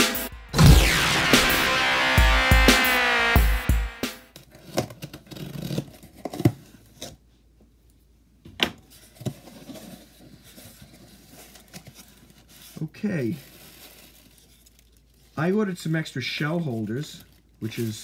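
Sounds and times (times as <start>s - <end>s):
low thumps: 0.0s - 4.1s
intro music: 0.0s - 4.2s
cardboard rustles and scrapes: 8.8s - 15.4s.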